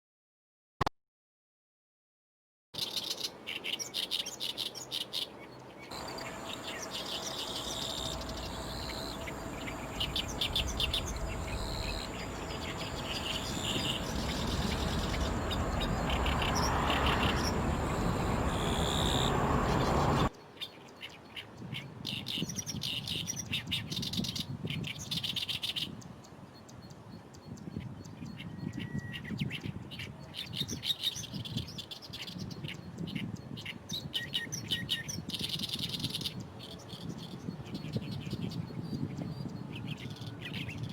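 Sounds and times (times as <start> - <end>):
reed warbler singing: 2.8 - 40.9
jet aircraft rushing and whine: 6.0 - 20.3.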